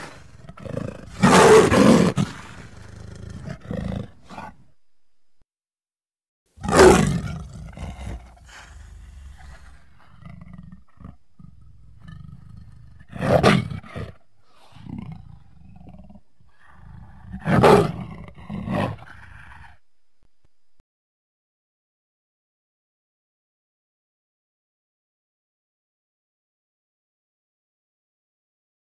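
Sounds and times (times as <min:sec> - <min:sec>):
lion roaring: 0:00.0 - 0:04.8, 0:06.6 - 0:19.8.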